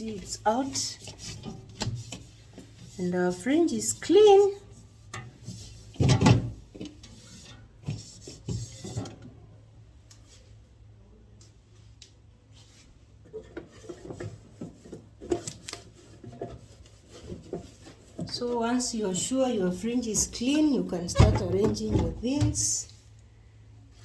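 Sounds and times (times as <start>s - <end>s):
fridge parts knocking and clattering: 5.2s - 9.4s, 20.1s - 22.8s.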